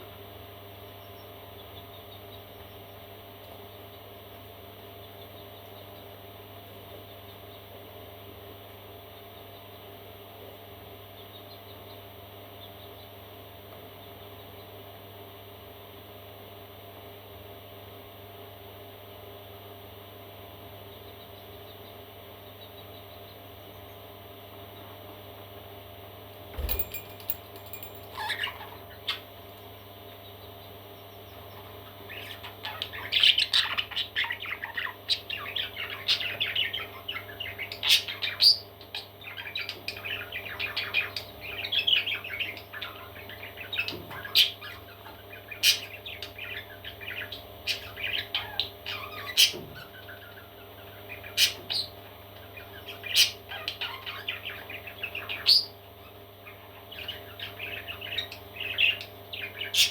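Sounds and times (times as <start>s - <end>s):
parrot chicks chirping and squawking: 26.6s - 59.9s.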